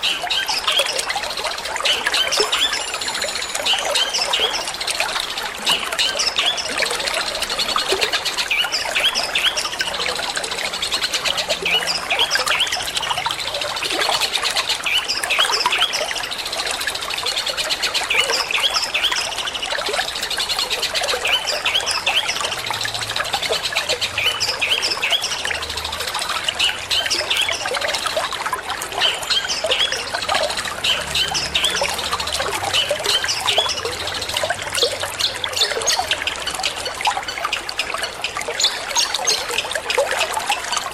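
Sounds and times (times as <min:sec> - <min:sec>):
trickling water: 0:00.0 - 0:40.9.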